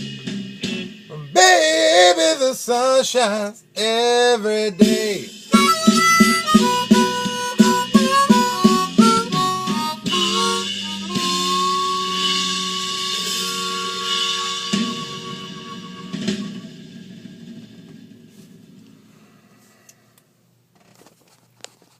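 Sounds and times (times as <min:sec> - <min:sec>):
drum and bass backing: 0:00.0 - 0:02.2, 0:04.8 - 0:18.3
blues harmonica: 0:04.8 - 0:16.8.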